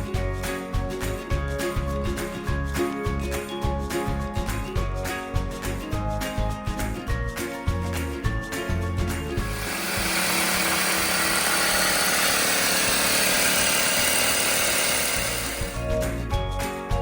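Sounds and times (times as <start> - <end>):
background music: 0.0 - 17.0
power tool whirring: 9.4 - 15.9.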